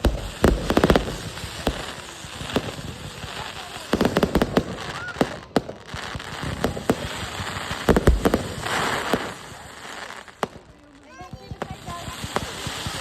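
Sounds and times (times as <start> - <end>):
firework hiss: 0.0 - 13.0
fireworks bangs and crackles: 0.0 - 13.0.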